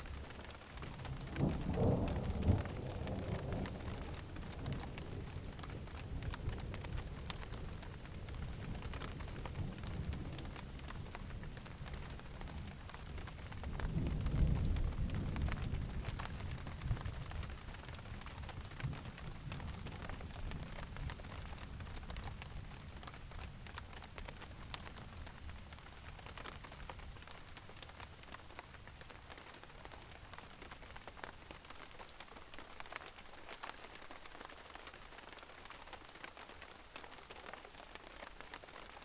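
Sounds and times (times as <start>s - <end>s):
rain pattering: 0.0s - 39.0s
low thunder rumbling: 0.8s - 10.8s.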